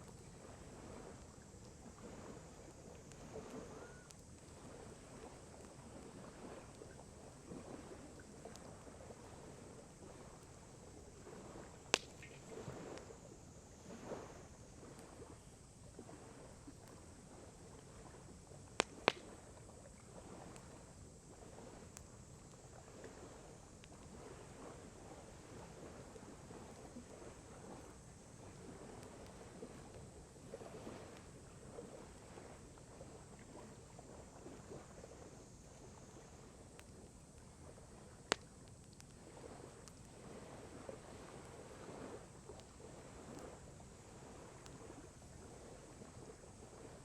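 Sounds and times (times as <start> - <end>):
lake water lapping: 0.0 - 47.0
wood fire crackling quietly: 0.0 - 47.0
sharp pops from burning wood: 11.9 - 12.4, 18.7 - 19.3, 38.2 - 39.2.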